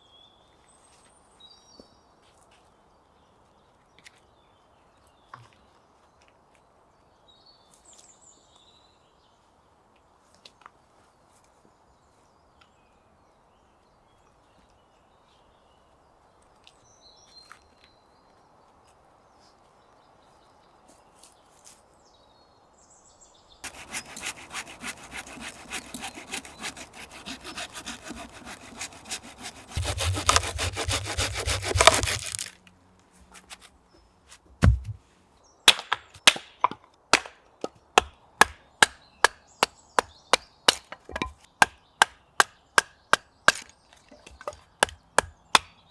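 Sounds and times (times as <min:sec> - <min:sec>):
sharp wooden knocks: 0:23.6 - 0:32.5, 0:34.6 - 0:35.0
hand saw cutting wood: 0:23.6 - 0:32.6, 0:42.0 - 0:43.7, 0:44.3 - 0:45.8.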